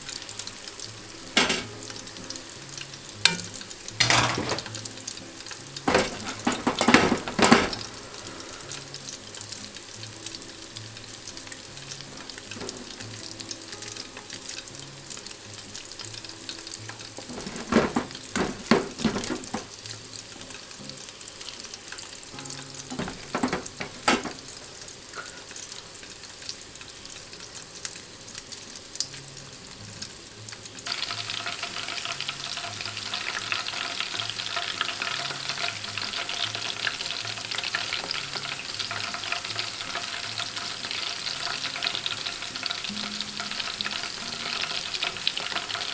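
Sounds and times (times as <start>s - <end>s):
meatballs sizzling in oil: 0.0s - 45.9s
pan clattering: 1.4s - 1.9s, 3.2s - 4.9s, 5.8s - 8.2s, 12.5s - 13.0s, 17.1s - 19.8s, 22.4s - 25.4s.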